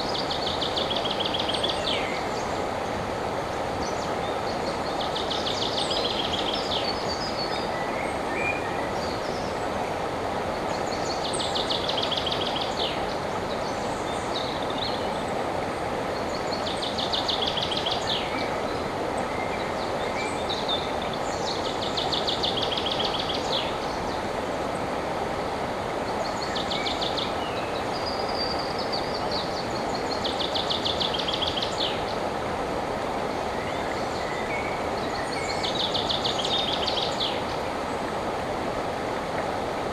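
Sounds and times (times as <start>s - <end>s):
songbird singing with trill: 0.0s - 2.5s, 3.8s - 9.5s, 10.7s - 15.1s, 16.2s - 24.2s, 26.2s - 32.2s, 33.5s - 37.6s
river water flowing: 0.0s - 39.9s.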